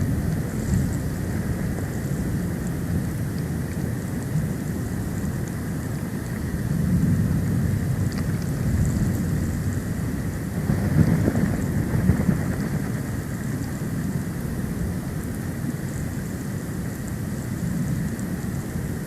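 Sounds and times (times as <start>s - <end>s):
wind buffeting microphone: 6.7s - 14.7s.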